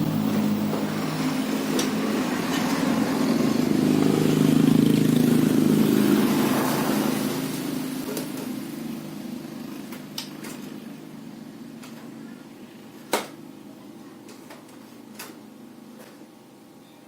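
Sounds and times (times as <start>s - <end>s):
vehicle engine: 0.0s - 12.9s.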